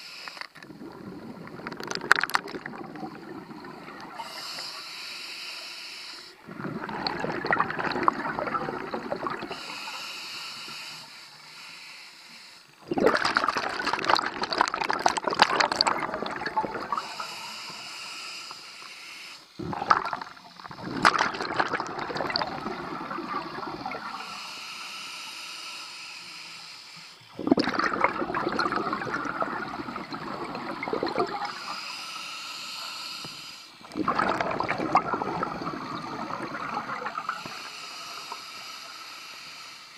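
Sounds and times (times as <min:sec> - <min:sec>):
regulator inhale hiss: 0:00.0 - 0:00.6, 0:03.6 - 0:06.5, 0:09.4 - 0:12.8, 0:16.9 - 0:19.6, 0:24.0 - 0:27.4, 0:31.4 - 0:33.9, 0:37.2 - 0:39.9
exhaled bubbles rushing: 0:00.6 - 0:04.2, 0:06.4 - 0:09.6, 0:12.8 - 0:17.2, 0:19.6 - 0:24.3, 0:27.4 - 0:31.6, 0:33.8 - 0:37.5.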